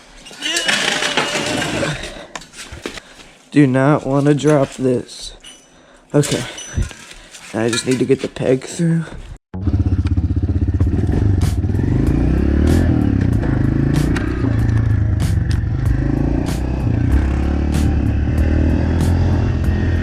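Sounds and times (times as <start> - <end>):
dirt bike engine running: 9.6 - 20.0.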